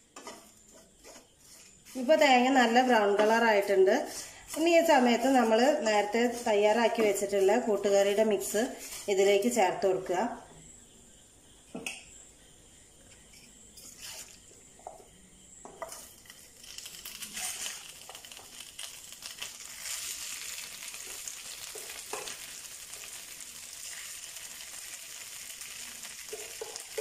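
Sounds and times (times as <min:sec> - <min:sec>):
food frying in a pan: 0:00.0 - 0:09.2, 0:15.7 - 0:27.0.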